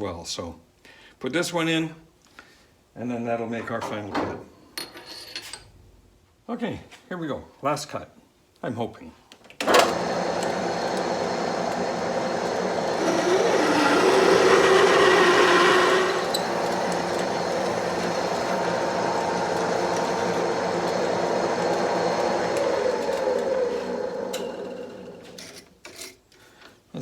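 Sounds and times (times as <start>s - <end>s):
lathe humming: 9.7s - 25.6s
drill bit cutting metal with squeal: 13.0s - 18.7s.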